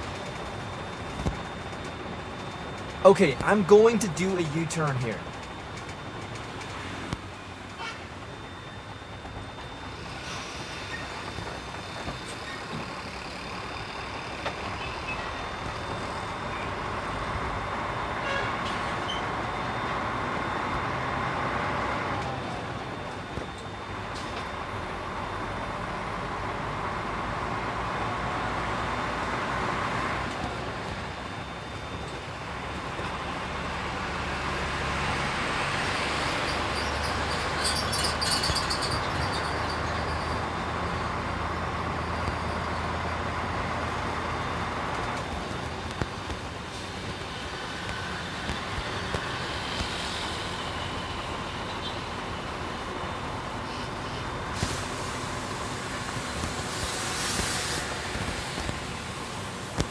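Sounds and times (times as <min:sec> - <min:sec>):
road noise: 0:00.0 - 0:08.4, 0:24.0 - 0:59.9
diesel truck engine running: 0:24.0 - 0:56.8.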